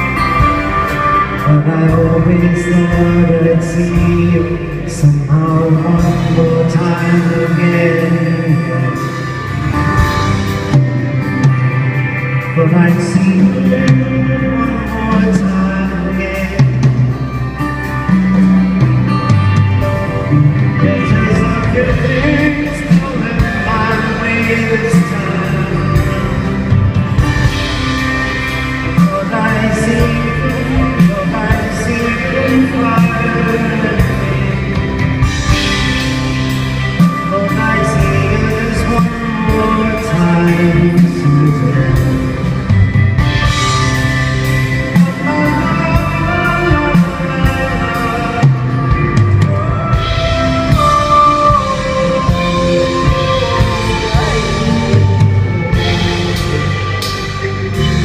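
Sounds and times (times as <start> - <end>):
live soft-rock band: 0.0 - 58.0
wordless singing: 20.3 - 27.7, 28.7 - 58.0.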